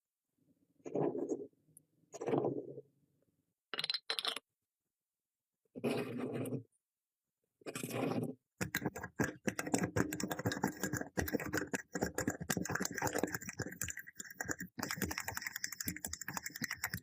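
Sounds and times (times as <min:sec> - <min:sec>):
pencil sharpener clicking and rattling: 0:08.6 - 0:17.0.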